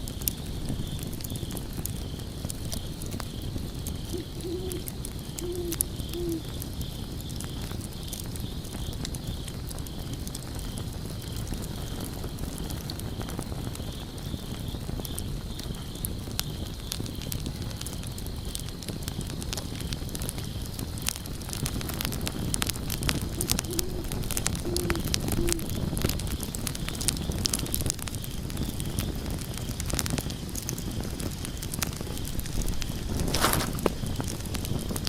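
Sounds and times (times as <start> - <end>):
log fire crackling and popping: 0.0 - 35.0
faint high chirping: 4.1 - 6.5, 23.3 - 25.7
owl hooting: 4.1 - 6.5, 23.1 - 25.8.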